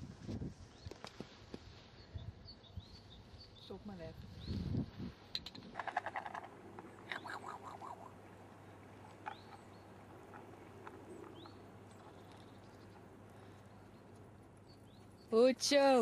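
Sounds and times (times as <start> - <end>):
faint birds calling: 5.4 - 15.7.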